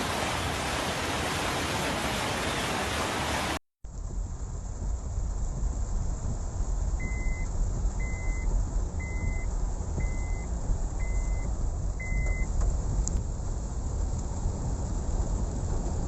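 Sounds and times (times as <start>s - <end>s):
low rumble: 3.9s - 16.0s
vehicle warning beeper: 7.0s - 12.5s.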